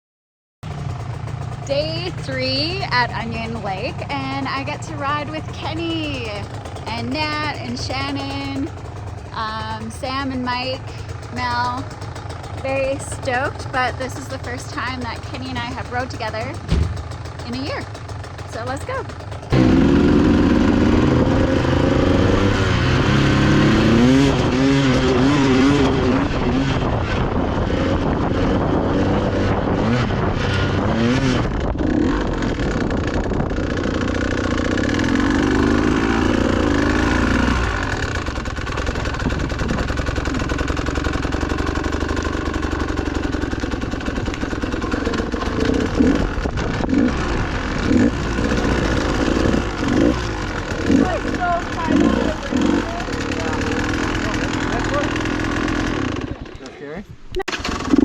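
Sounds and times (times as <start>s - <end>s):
dirt bike engine revving: 0.6s - 58.0s
knocks: 16.6s - 17.4s.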